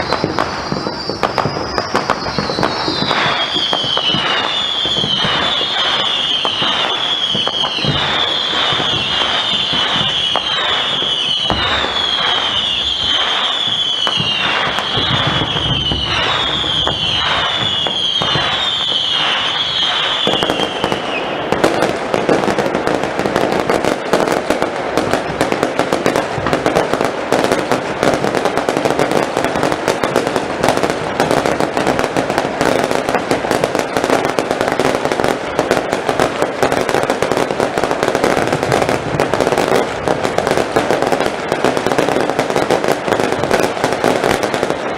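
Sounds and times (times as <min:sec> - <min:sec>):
dense crackle of small bursts: 0:00.0 - 0:44.9
whistling fireworks with cracks: 0:00.0 - 0:44.9.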